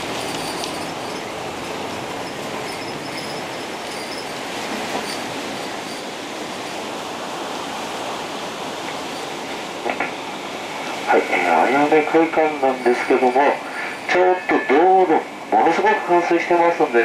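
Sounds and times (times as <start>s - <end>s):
faint high squeaks: 0.0s - 6.8s
heavy rain on bus roof: 0.0s - 17.0s.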